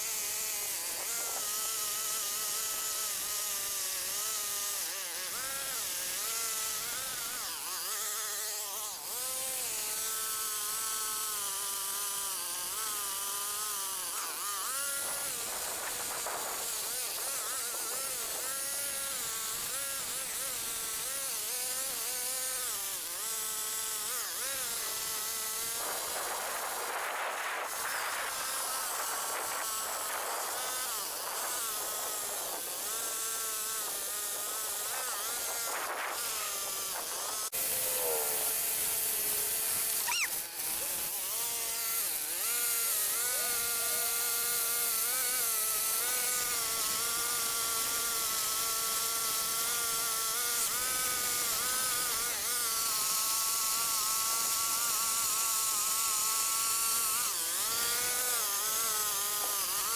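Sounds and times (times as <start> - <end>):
chainsaw cutting limbs: 0.0 - 59.9.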